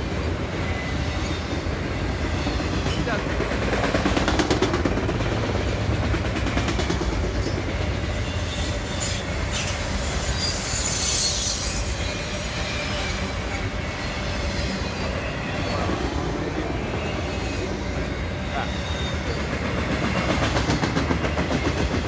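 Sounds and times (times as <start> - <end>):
freight train rumbling past: 0.0 - 22.0
high-pitched wheel squeal: 7.4 - 19.5.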